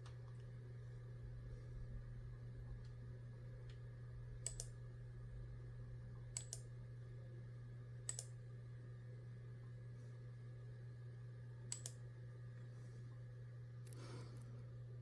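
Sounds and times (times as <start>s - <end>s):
steady low hum: 0.0s - 15.0s
computer keyboard keystrokes: 4.4s - 4.8s, 6.4s - 6.6s, 8.1s - 8.3s, 11.7s - 12.0s.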